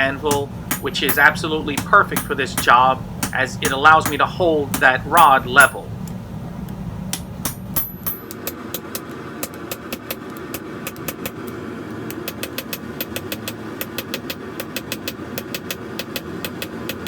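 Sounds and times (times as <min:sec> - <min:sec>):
hammer striking steel on anvil: 0:00.0 - 0:05.9, 0:07.1 - 0:11.4
steady mechanical drone: 0:00.0 - 0:17.0.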